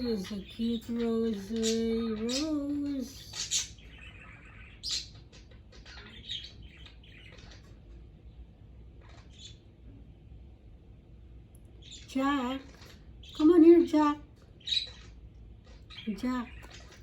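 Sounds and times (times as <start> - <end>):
budgerigars chirping: 0.0 - 8.0, 8.9 - 9.8, 11.8 - 17.0.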